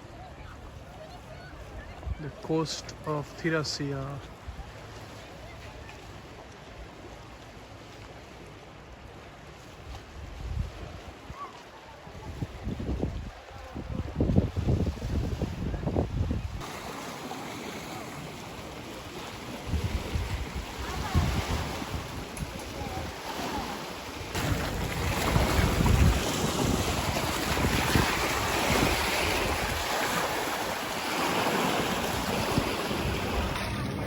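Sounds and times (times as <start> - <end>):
sea waves: 0.0 - 34.0
wind buffeting microphone: 10.0 - 11.4, 12.1 - 16.7, 19.4 - 34.0.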